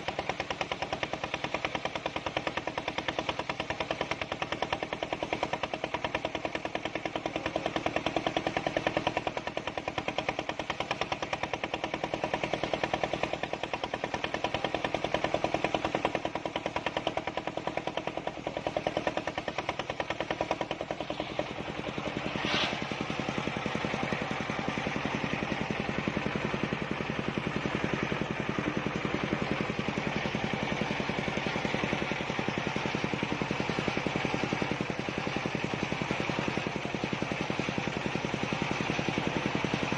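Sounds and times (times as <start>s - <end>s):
circular saw cutting log: 18.7s - 26.3s.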